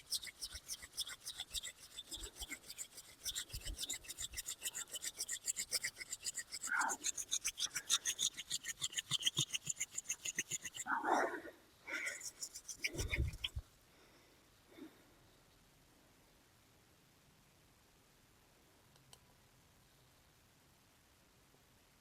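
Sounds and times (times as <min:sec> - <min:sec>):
wooden hand drill rasping: 0:00.0 - 0:10.9, 0:12.0 - 0:13.6.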